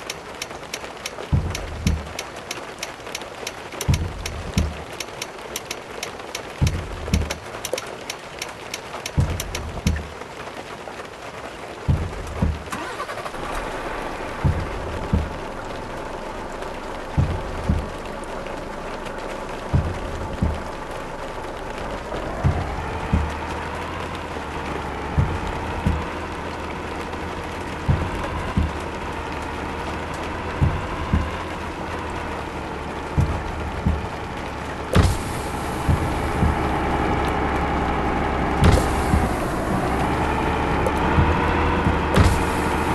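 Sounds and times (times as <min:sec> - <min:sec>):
steady road noise: 0:00.0 - 0:42.9
deep thumps from vehicle: 0:01.3 - 0:02.2, 0:03.8 - 0:04.9, 0:06.6 - 0:07.4, 0:09.2 - 0:10.1, 0:11.9 - 0:12.8, 0:13.9 - 0:15.9, 0:17.0 - 0:18.2, 0:19.6 - 0:21.2, 0:21.8 - 0:23.7, 0:25.1 - 0:26.2, 0:27.8 - 0:28.9, 0:30.5 - 0:31.6, 0:33.1 - 0:34.3, 0:35.0 - 0:37.9, 0:38.5 - 0:42.9.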